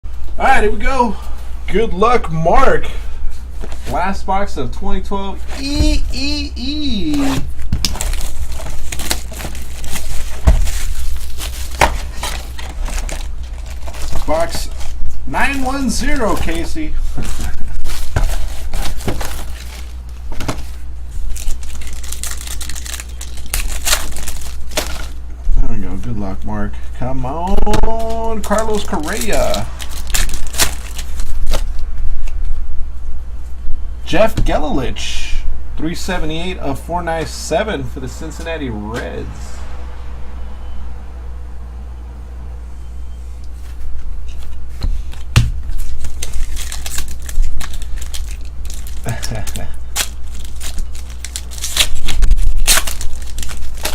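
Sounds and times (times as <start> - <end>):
steady low hum: 0.0 - 53.9
packaging crinkling and tearing: 7.1 - 25.2, 27.8 - 31.9, 45.7 - 53.9.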